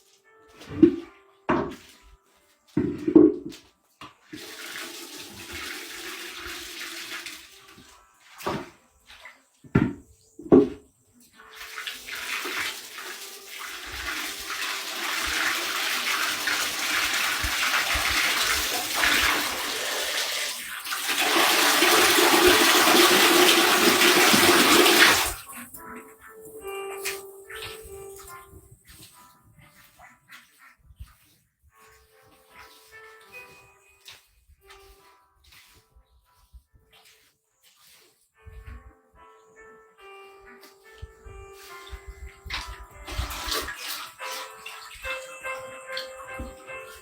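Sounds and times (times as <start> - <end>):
water running and splashing: 4.2 - 9.9, 11.3 - 26.0, 37.0 - 38.2, 41.6 - 47.0.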